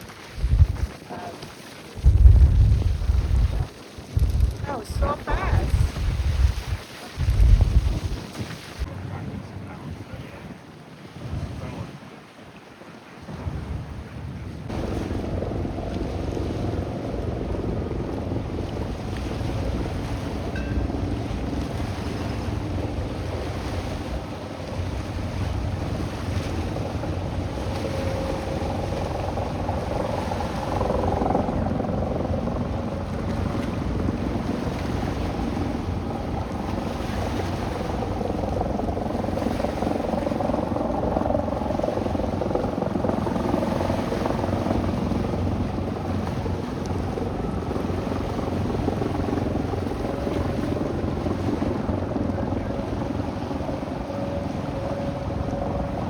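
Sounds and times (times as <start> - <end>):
rush of wind and water: 0.0 - 56.0
boat motor running: 14.7 - 56.0
faint hum: 14.7 - 56.0.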